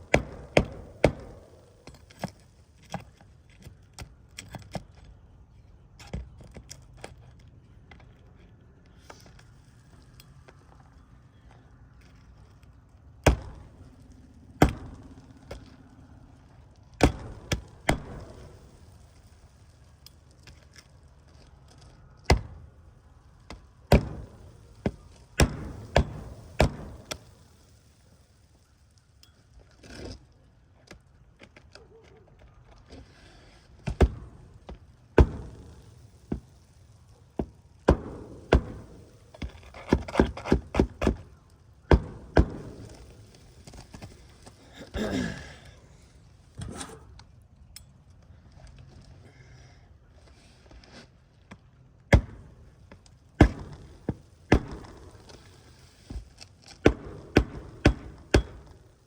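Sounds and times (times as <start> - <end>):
hammer striking nails: 0.1 - 2.0, 53.4 - 55.0, 56.8 - 58.7.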